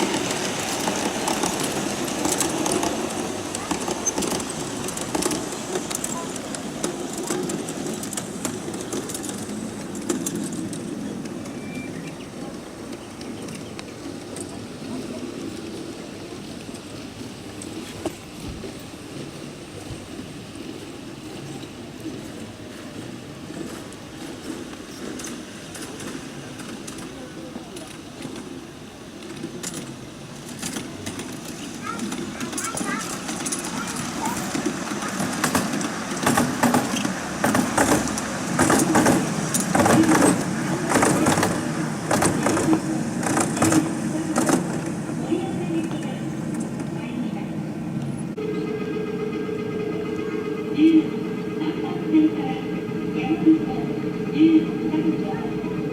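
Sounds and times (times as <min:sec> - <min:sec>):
model train wheels clacking: 0:00.0 - 0:11.6, 0:29.2 - 0:46.9
steady hum: 0:31.4 - 0:55.9.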